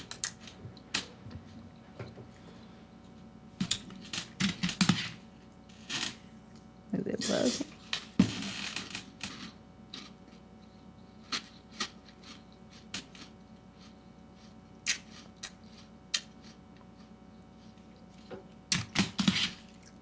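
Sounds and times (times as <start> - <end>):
person chewing cereal: 9.4 - 20.0.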